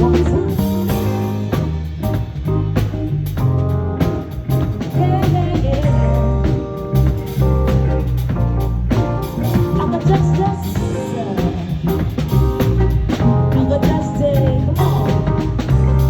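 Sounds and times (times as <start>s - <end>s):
live band playing: 0.0s - 16.0s
person singing: 9.7s - 12.0s.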